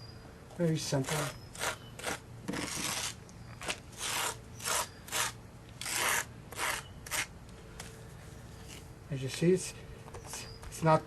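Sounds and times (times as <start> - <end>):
hand tool scraping paste on asphalt: 0.8 - 7.3.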